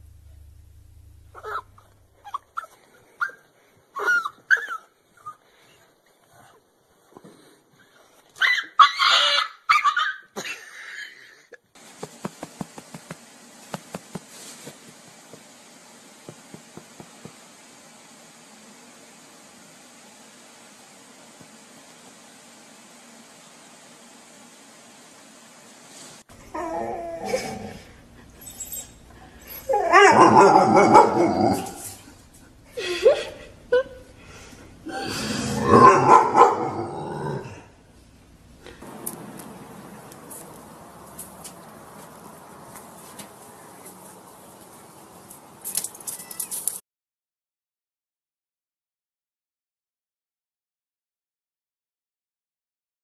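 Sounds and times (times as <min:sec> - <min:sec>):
dog barking and snarling: 0:01.3 - 0:03.4, 0:29.6 - 0:32.2, 0:34.9 - 0:37.7
dog whimpering and yipping: 0:01.3 - 0:05.4, 0:08.4 - 0:10.3, 0:28.4 - 0:31.6
faint hiss: 0:10.5 - 0:26.5.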